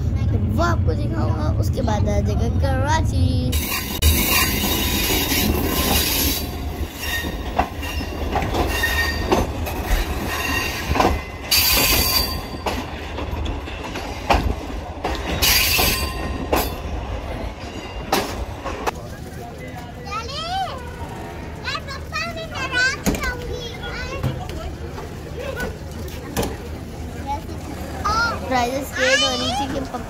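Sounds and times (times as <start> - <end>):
train rumble: 0.0 - 30.0
wheels and brakes squealing: 3.6 - 13.0, 15.4 - 18.8
wheels clacking over rail joints: 3.6 - 30.0.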